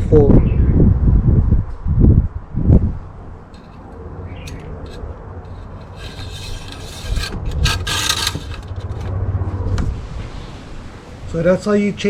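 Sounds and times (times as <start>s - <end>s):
dipstick scraping in metal tube: 3.6s - 9.2s.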